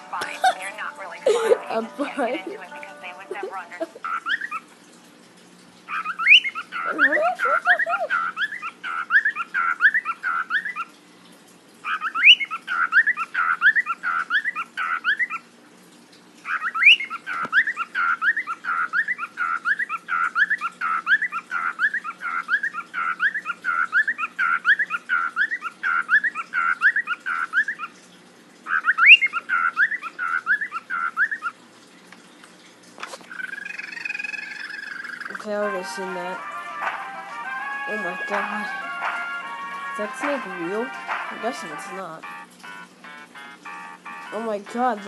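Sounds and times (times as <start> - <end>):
bird chirping: 0.0 - 4.7, 5.9 - 11.0, 11.8 - 15.4, 16.4 - 27.9, 28.7 - 31.6, 33.3 - 45.0.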